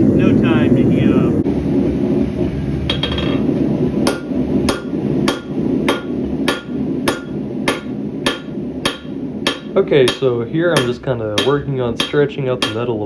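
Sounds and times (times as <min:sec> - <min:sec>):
steady low roar: 0:00.0 - 0:12.6
hammer striking metal on anvil: 0:04.1 - 0:13.0.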